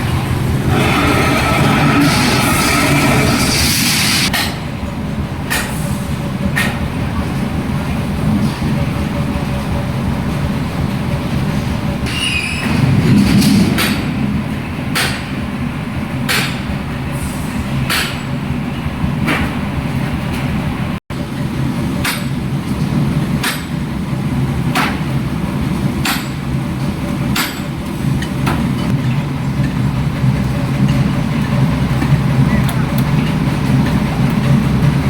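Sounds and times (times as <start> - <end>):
steady low rumble: 0.0 - 12.1, 12.7 - 21.8.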